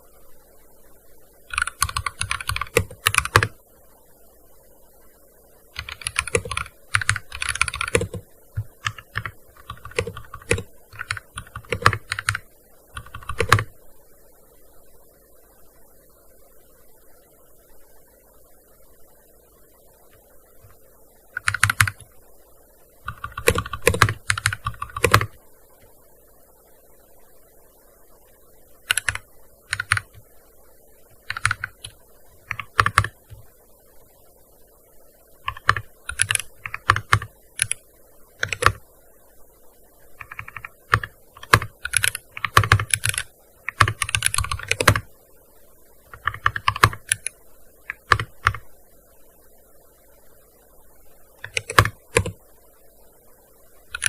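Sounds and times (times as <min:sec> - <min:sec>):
keyboard key clicks: 0:40.2 - 0:45.0, 0:51.4 - 0:52.4.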